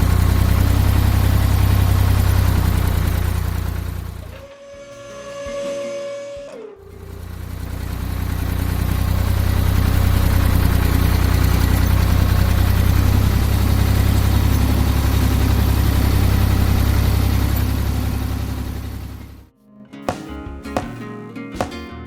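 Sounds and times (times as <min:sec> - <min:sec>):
tractor engine running: 0:00.0 - 0:04.4, 0:06.6 - 0:19.5.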